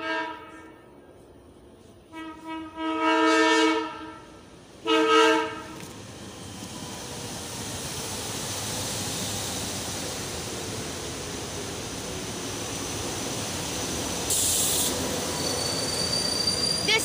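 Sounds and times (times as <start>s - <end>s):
train passing at speed: 0.0s - 17.0s
sharp high hiss: 12.6s - 17.0s
faint high wheel squeal: 14.4s - 17.0s.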